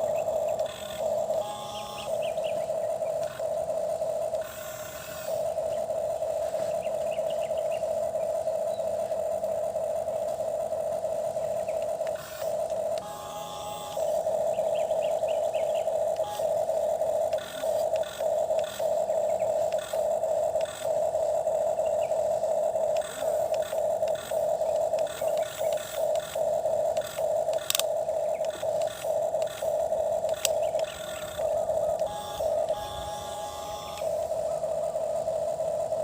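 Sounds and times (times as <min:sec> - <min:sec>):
small electric motor whining: 0:00.0 - 0:36.0
scraping clicks of digging: 0:22.9 - 0:31.5.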